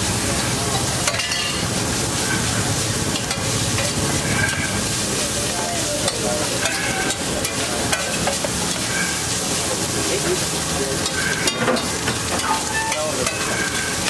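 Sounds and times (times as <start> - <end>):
buns sizzling in oil: 0.0 - 14.0
metal spatula ticking on griddle: 11.0 - 14.0.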